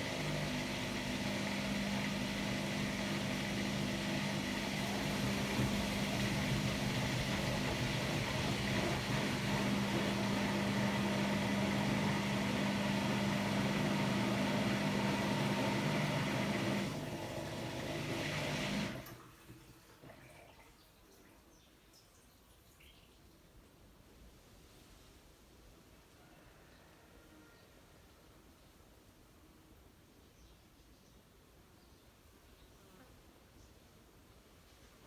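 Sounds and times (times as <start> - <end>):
washer-dryer humming: 0.0 - 20.6
washer-dryer running: 0.0 - 20.6
faint water drips: 19.0 - 23.5.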